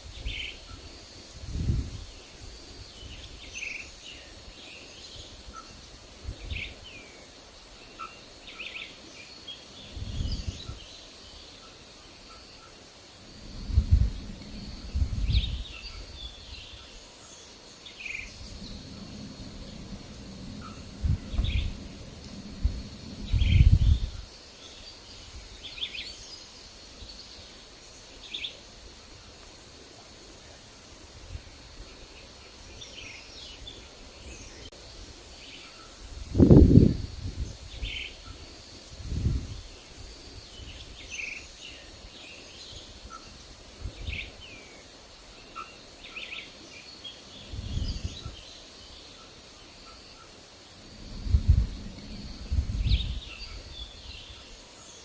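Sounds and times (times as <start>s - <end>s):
wind buffeting microphone: 1.3s - 3.5s, 9.8s - 10.8s, 13.3s - 16.6s, 18.2s - 24.4s, 36.1s - 39.8s, 47.4s - 48.4s, 50.8s - 54.4s
birds chirping: 14.5s - 28.6s.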